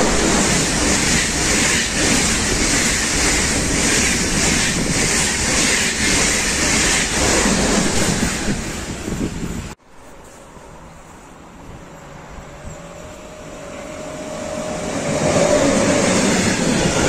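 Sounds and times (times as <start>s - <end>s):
high-speed train passing: 0.0s - 17.0s.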